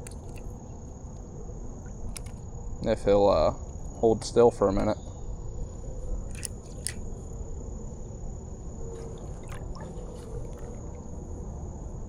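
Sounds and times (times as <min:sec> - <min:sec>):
small splashes: 0:00.0 - 0:00.6, 0:06.3 - 0:07.0, 0:09.0 - 0:11.1
insects droning: 0:00.0 - 0:12.0.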